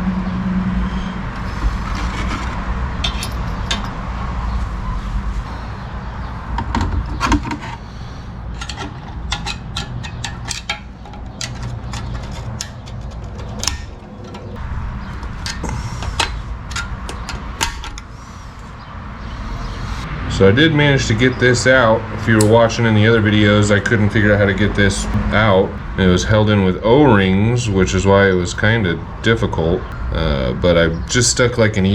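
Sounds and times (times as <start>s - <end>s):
steady low hum: 0.0s - 31.9s
metal parts clicking and knocking: 1.4s - 4.1s, 5.5s - 18.7s.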